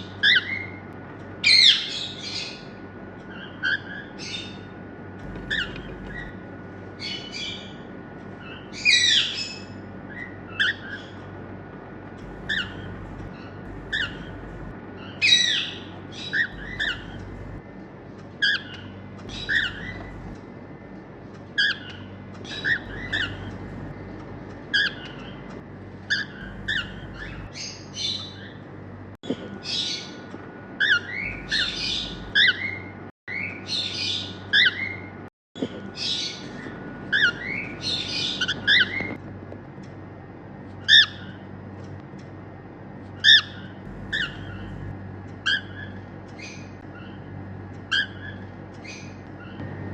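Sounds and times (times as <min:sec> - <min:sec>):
harsh bird screeching: 0:05.2 - 0:06.4, 0:12.2 - 0:14.8, 0:16.4 - 0:17.6, 0:19.3 - 0:20.4, 0:22.5 - 0:24.0, 0:26.1 - 0:27.6, 0:30.9 - 0:32.7, 0:43.4 - 0:44.9
cockatiels chirping and whistling: 0:05.3 - 0:06.3, 0:12.2 - 0:14.7, 0:16.5 - 0:17.6, 0:19.3 - 0:20.4, 0:22.6 - 0:23.9, 0:26.4 - 0:27.6, 0:31.3 - 0:32.5, 0:43.9 - 0:44.9.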